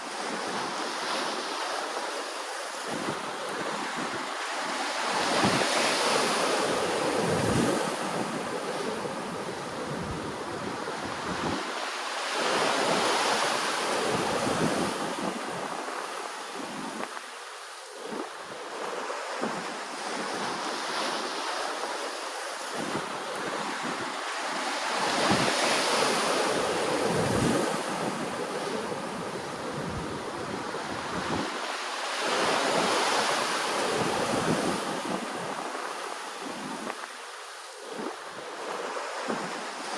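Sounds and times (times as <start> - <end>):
ocean waves washing ashore: 0.0 - 39.9
wind buffeting microphone: 2.7 - 17.3, 22.6 - 39.9.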